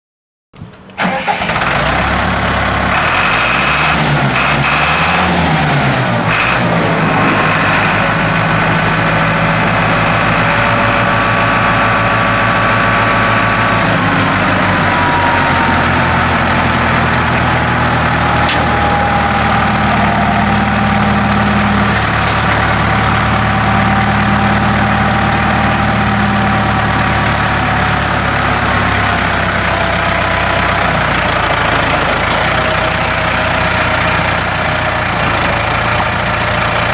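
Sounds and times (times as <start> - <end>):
tractor diesel engine starting: 0.6 - 36.9.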